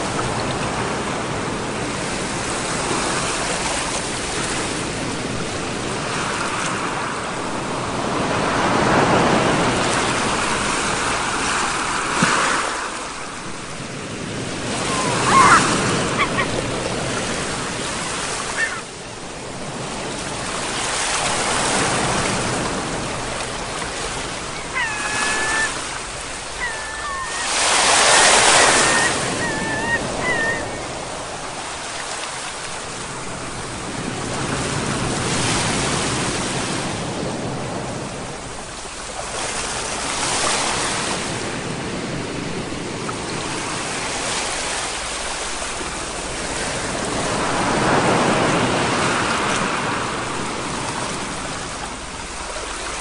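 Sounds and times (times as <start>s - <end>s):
ocean waves breaking on shore: 0.0s - 53.0s
short high calls: 14.7s - 16.6s, 18.4s - 18.9s, 24.5s - 31.0s.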